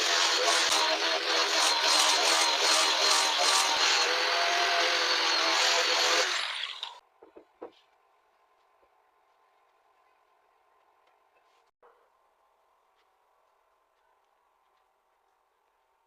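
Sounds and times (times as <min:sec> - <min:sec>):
power tool running on wood: 0:00.0 - 0:06.7.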